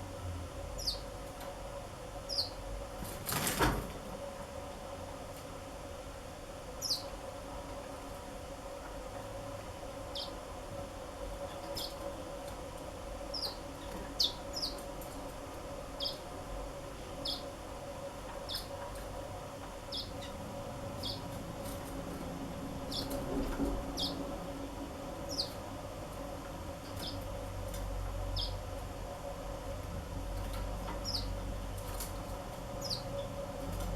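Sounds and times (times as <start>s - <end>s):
birds chirping: 16.0s - 16.2s, 17.2s - 17.5s, 19.9s - 20.4s, 21.0s - 21.3s, 22.9s - 23.2s, 24.0s - 24.2s, 28.4s - 28.6s, 31.0s - 31.3s, 32.8s - 33.1s.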